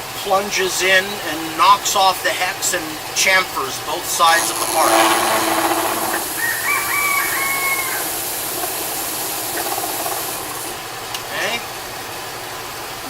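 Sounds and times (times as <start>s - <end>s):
lathe running: 4.1s - 10.9s
rooster crowing: 5.3s - 8.6s.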